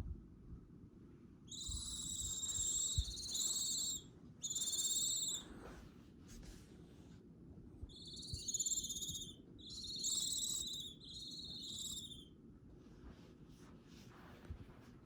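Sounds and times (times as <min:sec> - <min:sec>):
owl chicks rasping hiss calls: 0:01.5 - 0:05.5, 0:07.9 - 0:12.3.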